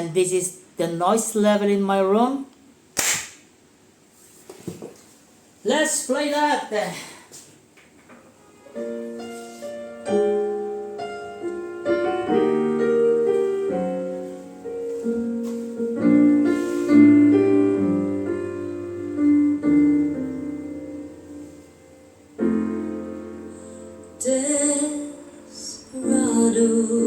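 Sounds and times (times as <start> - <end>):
solo piano chords through speaker: 8.4 - 27.0.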